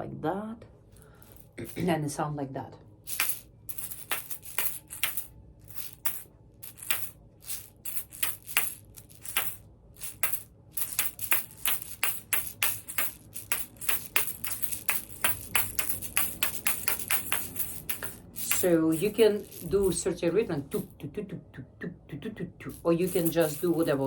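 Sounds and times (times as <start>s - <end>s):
seed rattle shaken: 3.1s - 20.0s, 22.7s - 24.0s.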